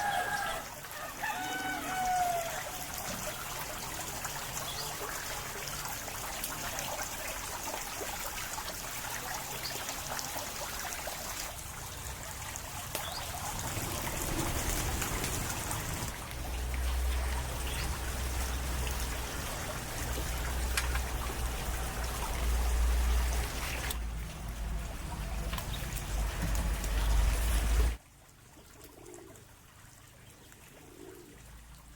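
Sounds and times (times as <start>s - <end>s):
water drips: 0.0s - 31.9s
water trickling and splashing: 0.0s - 31.9s.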